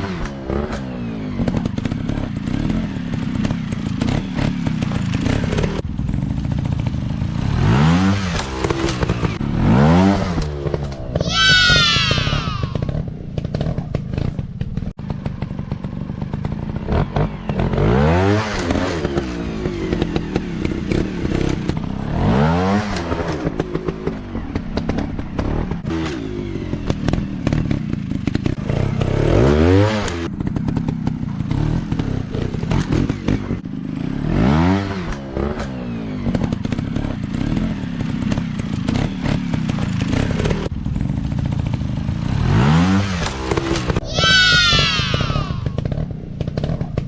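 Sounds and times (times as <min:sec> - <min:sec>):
dirt bike engine revving: 0:42.3 - 0:46.9.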